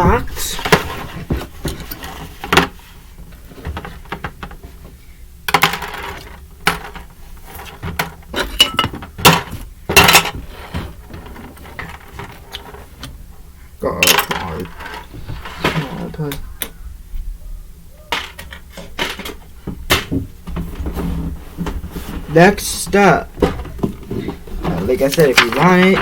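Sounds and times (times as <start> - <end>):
plastic parts clattering: 5.5 - 13.0, 14.0 - 16.3, 18.1 - 26.0.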